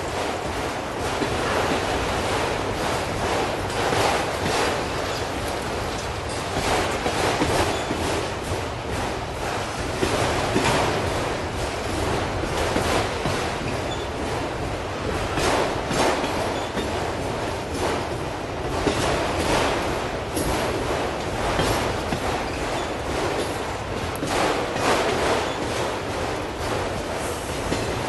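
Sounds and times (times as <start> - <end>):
freight train rumble: 0.0 - 28.0
steel wheels clacking over rail joints: 0.0 - 28.0.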